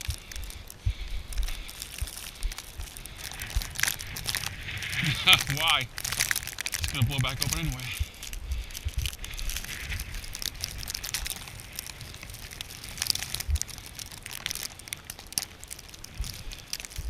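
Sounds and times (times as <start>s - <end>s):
footsteps crunching in snow: 0.0s - 13.6s
wind buffeting microphone: 0.0s - 14.7s.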